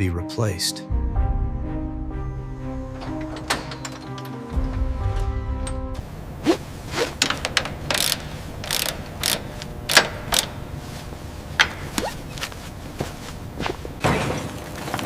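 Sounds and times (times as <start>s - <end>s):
low steady hum: 2.2s - 14.2s
metallic clicks and clanks of tools: 3.0s - 6.0s, 7.2s - 10.6s.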